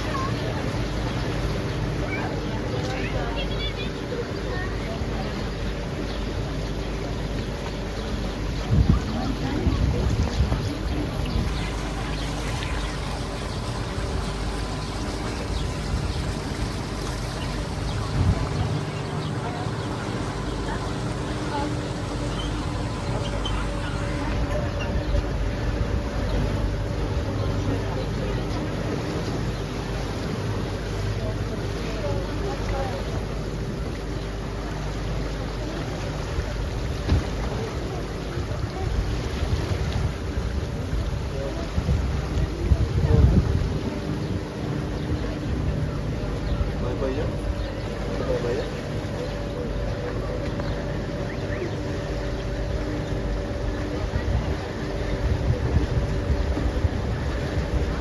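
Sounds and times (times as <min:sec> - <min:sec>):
boat engine running: 0:00.0 - 0:58.0
water splashing past hull: 0:00.0 - 0:58.0
wind on microphone: 0:08.3 - 0:29.6, 0:36.4 - 0:46.8, 0:52.1 - 0:58.0.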